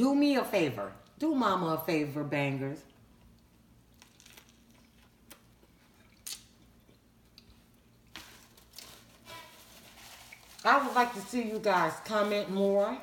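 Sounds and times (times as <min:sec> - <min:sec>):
chewing sandwich: 0:03.3 - 0:09.1.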